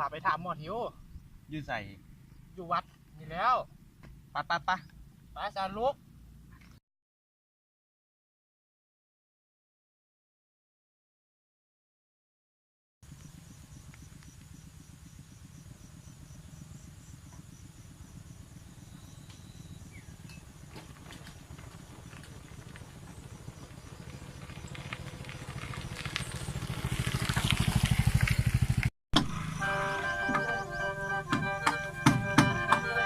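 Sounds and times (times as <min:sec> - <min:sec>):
small motorcycle engine running: 0:13.0 - 0:33.0.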